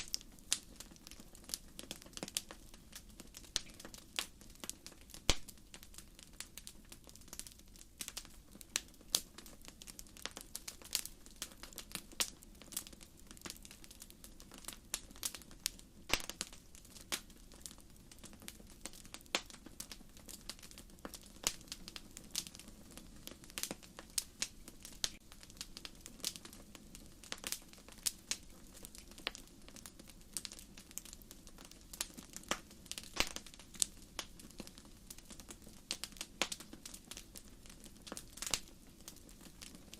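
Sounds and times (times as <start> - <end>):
soft hiss of flame: 0.0 - 39.9
logs popping and snapping: 16.1 - 16.5, 33.1 - 33.4.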